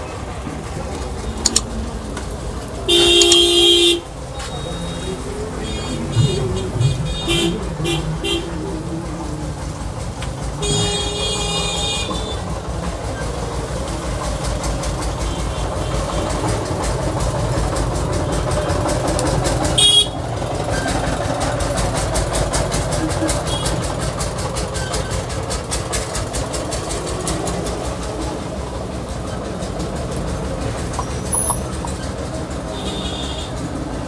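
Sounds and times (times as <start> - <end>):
street traffic rumble: 0.0 - 34.0
vehicle horn toot: 2.9 - 6.4, 10.6 - 12.4, 19.8 - 20.2, 23.5 - 23.7, 32.8 - 33.5.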